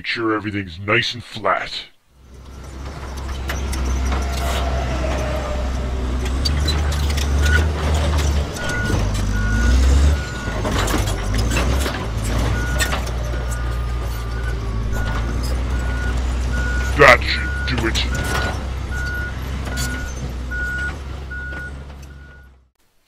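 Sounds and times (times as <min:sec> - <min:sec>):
construction vehicle engine rumbling: 0:02.0 - 0:22.7
reversing alarm beeping: 0:06.2 - 0:07.8, 0:08.6 - 0:11.8, 0:12.5 - 0:22.6.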